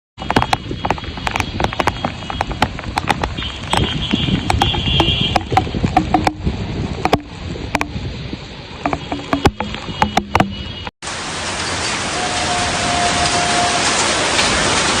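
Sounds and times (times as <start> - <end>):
sharp knocks and clatter: 0.2 - 8.0, 8.8 - 10.9
floodwater rushing: 0.3 - 15.0.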